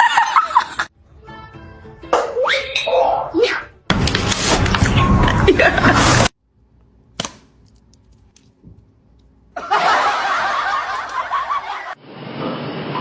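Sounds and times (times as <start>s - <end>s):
people snickering and chuckling: 5.3s - 6.3s, 9.6s - 12.0s.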